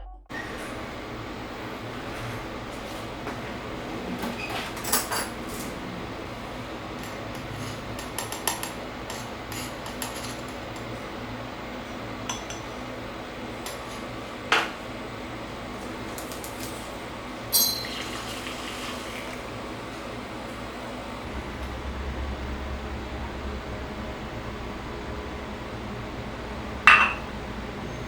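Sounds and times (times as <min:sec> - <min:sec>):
steady low hum: 0:19.3 - 0:28.0
crockery and cutlery clinking: 0:26.9 - 0:27.3.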